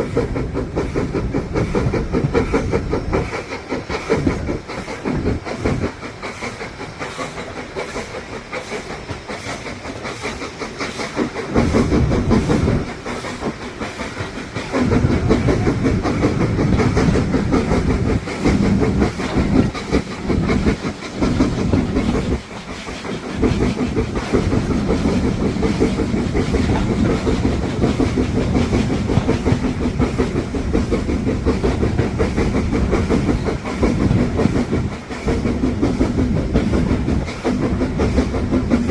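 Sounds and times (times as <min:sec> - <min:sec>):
clickety-clack over rail joints: 0:00.0 - 0:38.9
wheel-on-rail rumble: 0:00.0 - 0:38.9.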